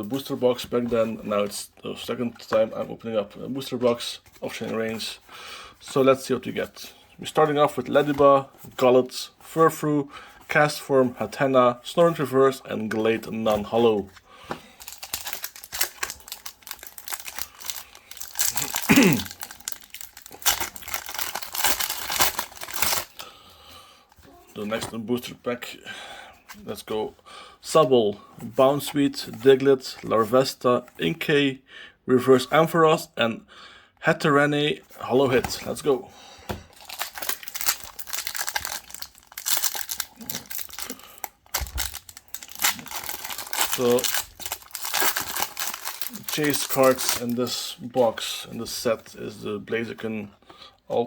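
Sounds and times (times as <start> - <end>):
foil wrapper crinkling and tearing: 14.8 - 23.3, 36.7 - 47.5.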